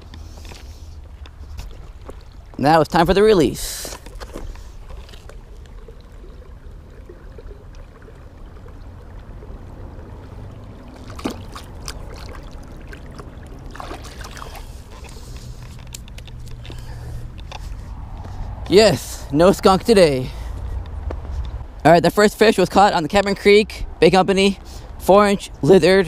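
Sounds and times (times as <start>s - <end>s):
creek water trickling: 0.0s - 26.0s
steady low rumble: 4.4s - 22.3s.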